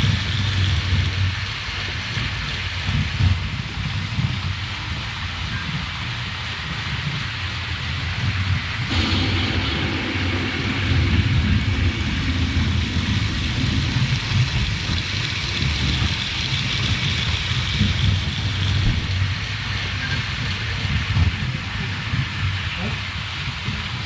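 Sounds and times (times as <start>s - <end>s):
model train rumble: 0.0s - 24.0s.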